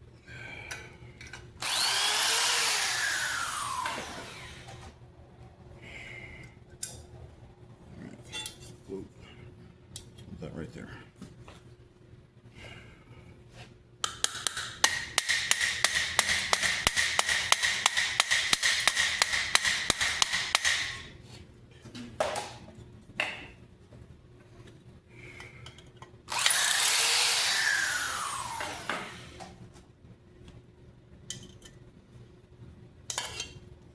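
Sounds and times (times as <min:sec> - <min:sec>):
power tool whine: 0:01.6 - 0:05.0, 0:26.3 - 0:29.4.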